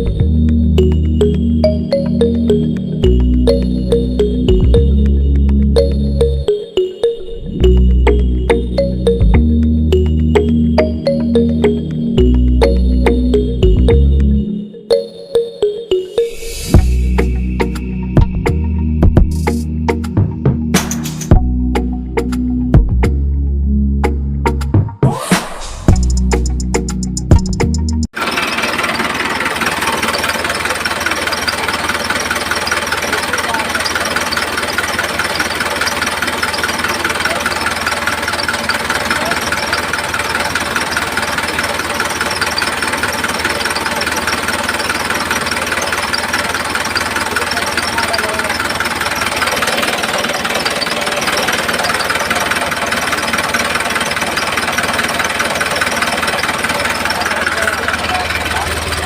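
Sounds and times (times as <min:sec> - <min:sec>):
small motor rattling: 0:28.2 - 0:59.0.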